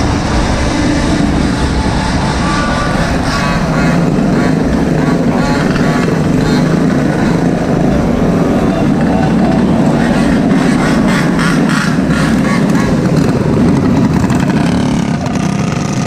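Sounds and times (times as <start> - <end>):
small gas engines running: 0.0 - 16.0
wind rumble on microphone: 0.0 - 16.0.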